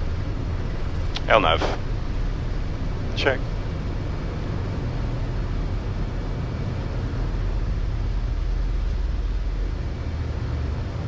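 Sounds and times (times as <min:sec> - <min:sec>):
air rushing past cockpit: 0:00.0 - 0:11.0
jet engines rumbling: 0:00.0 - 0:11.0.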